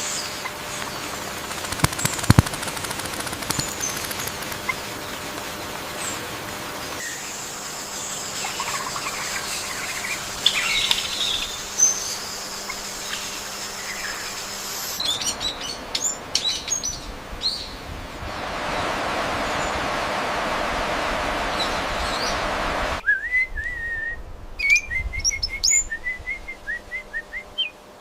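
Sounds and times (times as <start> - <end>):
birds chirping and calling: 0.0 - 5.4, 6.8 - 17.9
even rushing noise: 18.0 - 23.0.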